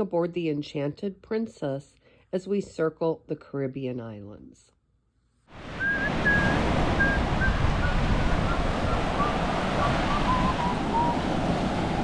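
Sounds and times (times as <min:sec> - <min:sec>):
surf on a beach: 0:05.5 - 0:12.0
wind buffeting microphone: 0:05.6 - 0:12.0.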